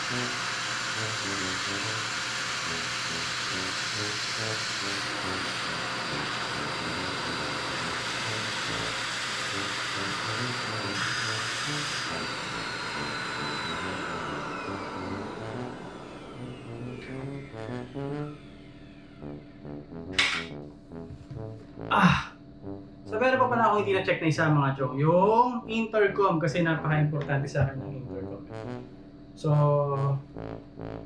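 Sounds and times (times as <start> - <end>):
small electric blower motor whine: 0.0 - 19.6.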